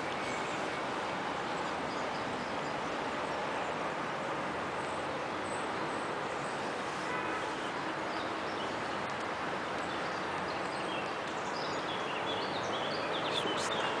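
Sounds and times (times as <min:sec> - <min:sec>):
distant city noise: 0:00.0 - 0:14.0
small birds chirping: 0:07.4 - 0:14.0.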